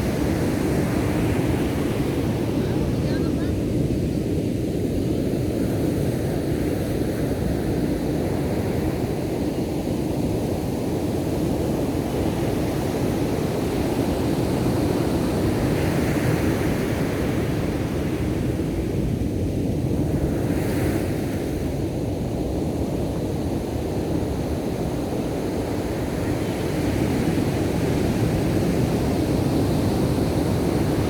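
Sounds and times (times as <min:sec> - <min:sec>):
ocean surf breaking: 0:00.0 - 0:04.2
wind buffeting microphone: 0:00.0 - 0:11.7.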